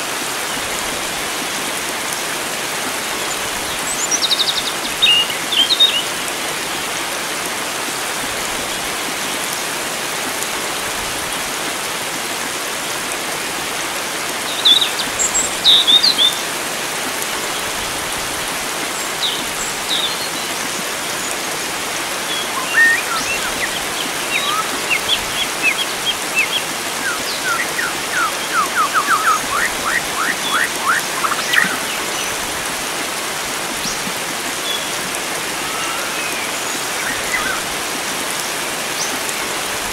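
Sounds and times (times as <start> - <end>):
running water: 0.0 - 39.9
birds chirping and calling: 22.3 - 32.4.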